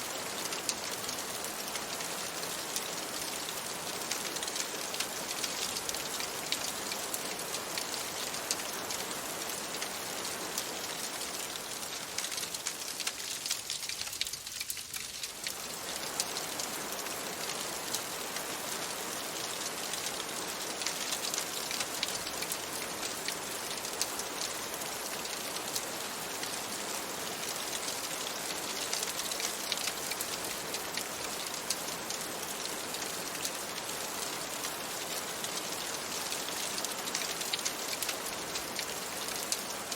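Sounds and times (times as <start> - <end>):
rain pattering on a window: 0.0 - 39.9
crackling fireplace: 0.4 - 16.7, 35.1 - 39.9.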